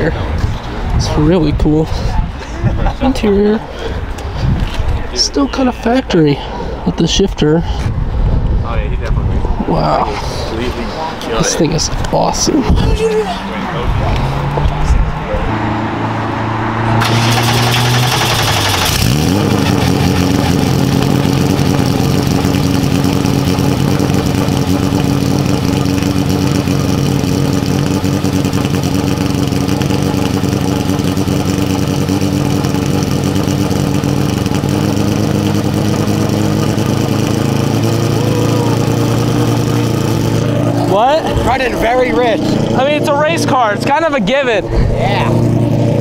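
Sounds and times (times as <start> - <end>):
race car engine idling: 17.0 - 46.0.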